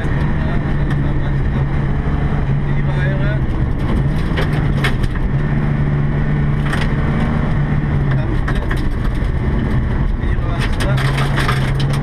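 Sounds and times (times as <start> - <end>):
car engine from inside cabin: 0.0 - 12.0
gravel clicking against car underside: 3.3 - 5.4, 7.9 - 12.0.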